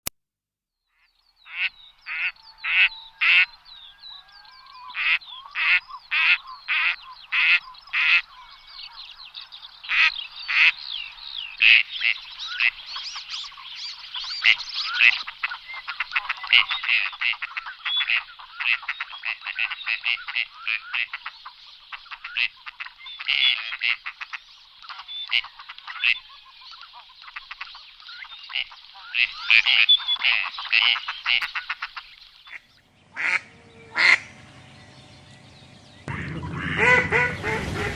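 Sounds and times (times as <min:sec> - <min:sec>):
ducks quacking: 0:01.5 - 0:08.4, 0:14.2 - 0:27.9, 0:28.5 - 0:37.9.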